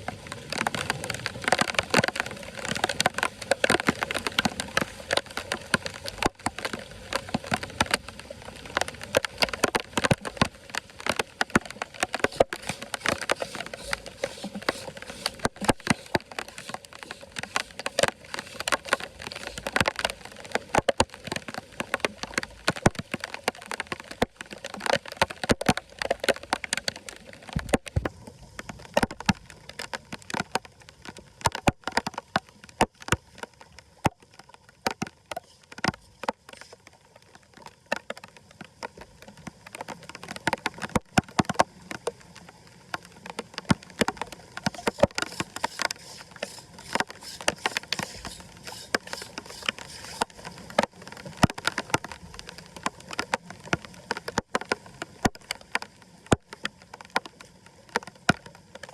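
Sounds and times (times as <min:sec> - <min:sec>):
floodwater running into drain: 0:00.0 - 0:20.8, 0:44.2 - 0:52.0
sharp clicks and knocks: 0:43.6 - 0:52.1.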